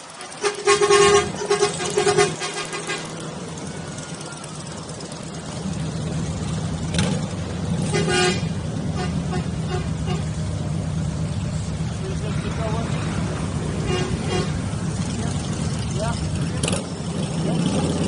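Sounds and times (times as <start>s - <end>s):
horn honk: 0.0s - 3.4s, 7.8s - 10.5s, 13.8s - 14.7s
motorcycle engines rumbling: 0.0s - 18.0s.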